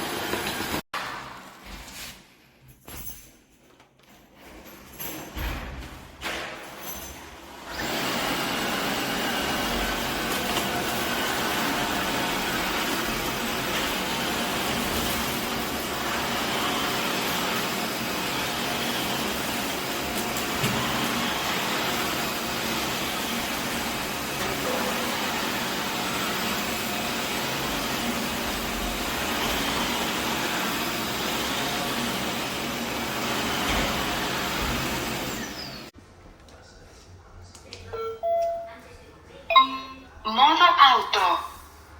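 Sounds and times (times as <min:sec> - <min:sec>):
floor vacuum whirring: 0:00.0 - 0:00.9, 0:07.5 - 0:36.0.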